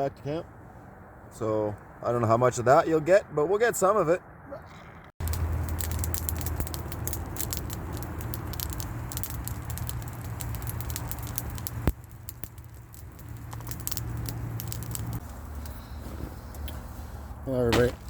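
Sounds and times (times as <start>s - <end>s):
wood fire crackling: 5.2s - 18.0s.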